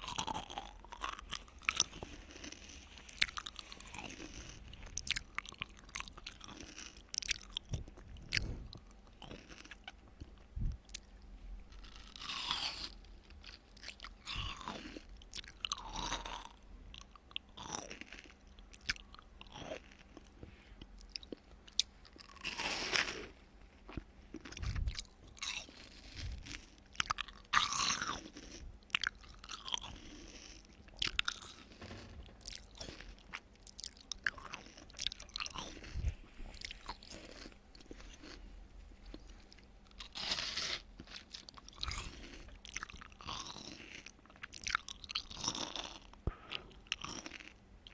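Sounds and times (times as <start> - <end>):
person chewing watermelon: 0.0 - 47.9.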